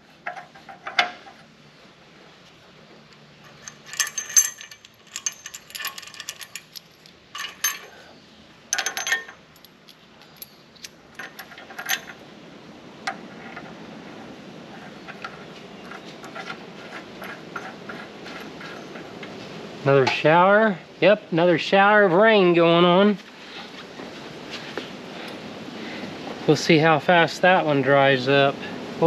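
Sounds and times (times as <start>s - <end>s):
metal bolts and nuts clinking: 0.2s - 1.5s, 3.4s - 12.2s, 13.1s - 19.4s.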